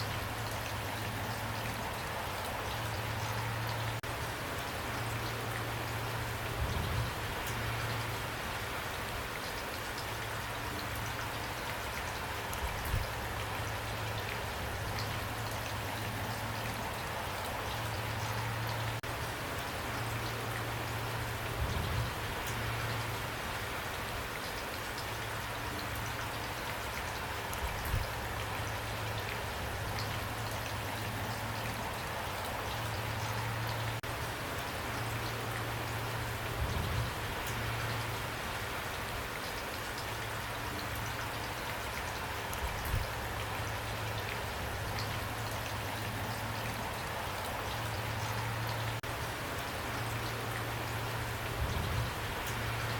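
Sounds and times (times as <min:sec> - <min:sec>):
rain falling: 0:00.0 - 0:52.9.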